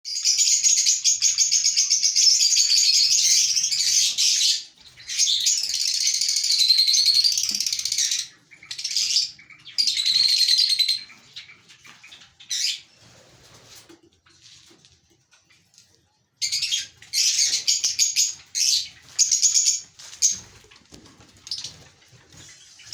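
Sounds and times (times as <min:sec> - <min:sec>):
lovebirds chattering: 0:00.2 - 0:13.0, 0:16.4 - 0:20.6.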